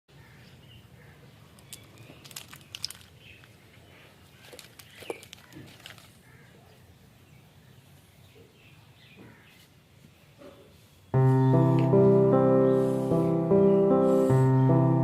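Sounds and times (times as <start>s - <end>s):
keyboard music: 11.2s - 15.0s.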